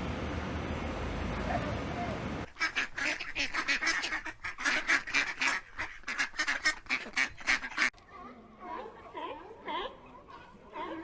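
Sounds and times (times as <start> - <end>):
ducks quacking: 1.5 - 7.9.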